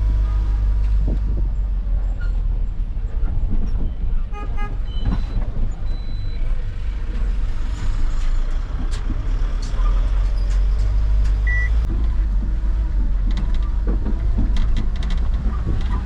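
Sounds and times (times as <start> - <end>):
truck engine running: 5.5 - 16.0.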